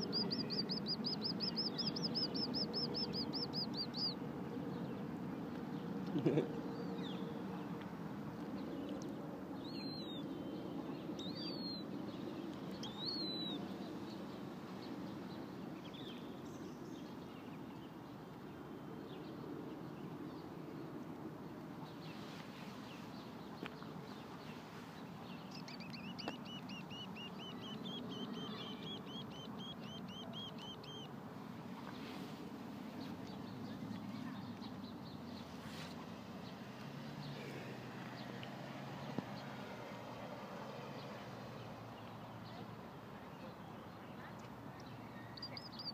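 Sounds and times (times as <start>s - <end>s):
bird chirping rapidly: 0.0s - 4.2s, 12.8s - 13.6s, 25.5s - 31.1s
sharp high bird calls: 25.5s - 31.1s.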